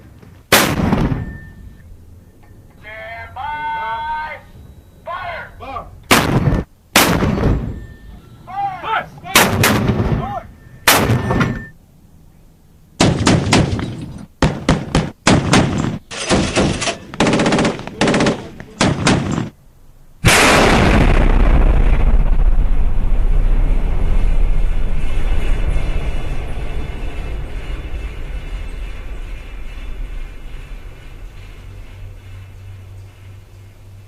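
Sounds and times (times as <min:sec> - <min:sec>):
gunshot: 0:00.5 - 0:01.3, 0:06.1 - 0:07.7, 0:09.4 - 0:10.2, 0:10.9 - 0:11.6, 0:13.0 - 0:19.5, 0:20.2 - 0:22.4
loud blast with deep rumble: 0:00.5 - 0:01.8, 0:06.1 - 0:07.9, 0:09.4 - 0:11.7, 0:20.2 - 0:33.4
automatic gunfire bursts: 0:14.5 - 0:19.4.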